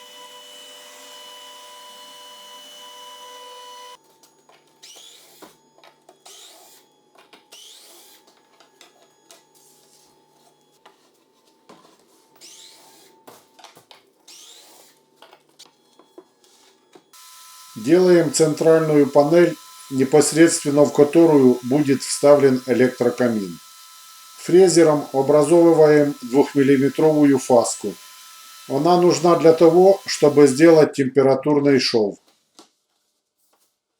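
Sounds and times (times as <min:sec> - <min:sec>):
cnc router humming: 0:00.0 - 0:04.0, 0:17.2 - 0:30.9
motor whines rising in pitch: 0:00.0 - 0:04.0, 0:17.2 - 0:30.8.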